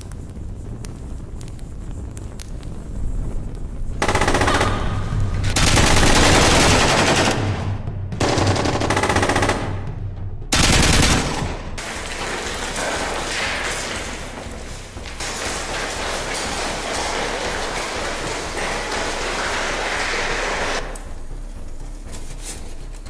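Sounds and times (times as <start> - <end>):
rapid gunfire: 4.0 - 9.9, 10.5 - 20.9.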